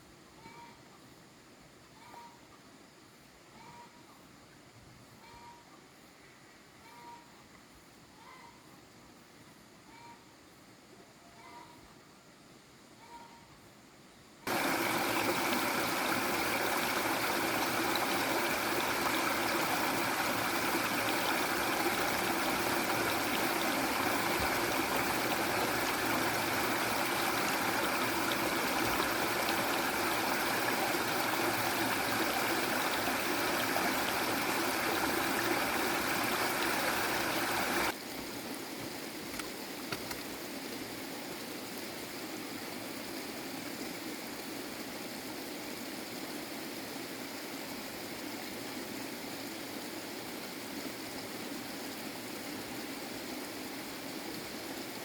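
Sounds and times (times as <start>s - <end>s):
running water rushing: 14.5s - 38.5s.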